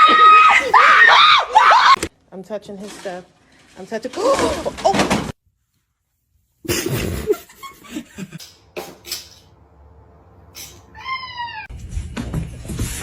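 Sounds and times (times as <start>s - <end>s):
cat meowing: 10.9s - 11.7s.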